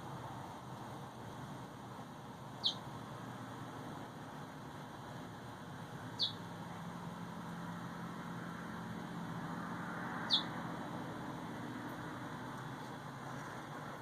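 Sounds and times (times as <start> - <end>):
bird chirping: 2.6 - 2.9, 6.2 - 6.5, 10.2 - 10.6.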